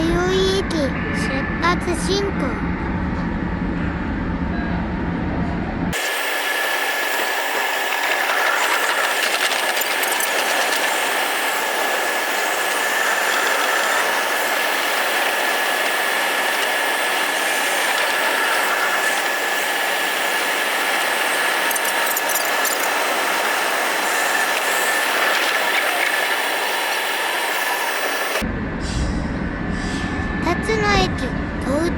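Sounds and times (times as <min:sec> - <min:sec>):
deep rumble: 0:00.0 - 0:06.0, 0:28.4 - 0:31.9
high whine: 0:00.0 - 0:31.9
train rolling hiss: 0:06.0 - 0:30.1.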